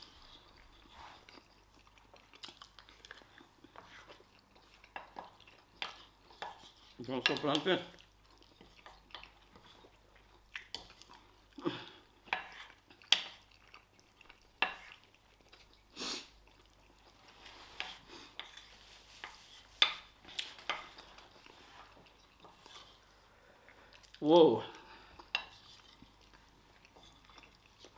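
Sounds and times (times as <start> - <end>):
quiet chewing: 0.0 - 27.9.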